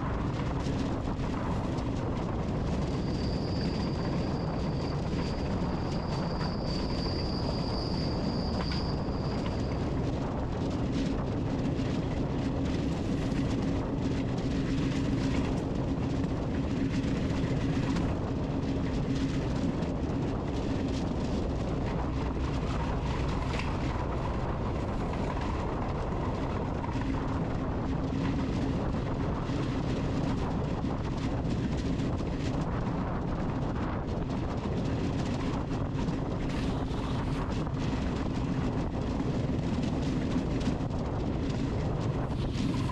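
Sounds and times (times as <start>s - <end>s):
drone propellers humming: 21.2s - 29.9s, 30.5s - 42.9s.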